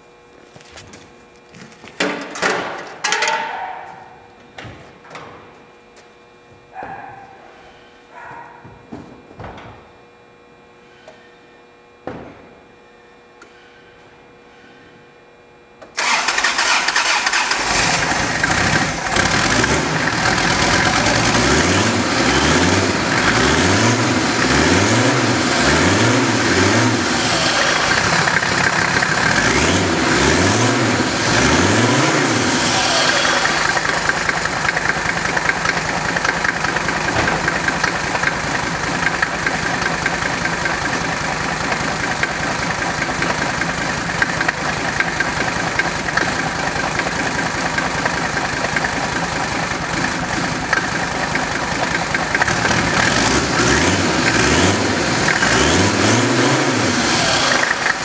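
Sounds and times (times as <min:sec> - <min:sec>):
diesel engine revving: 0:16.0 - 0:58.0.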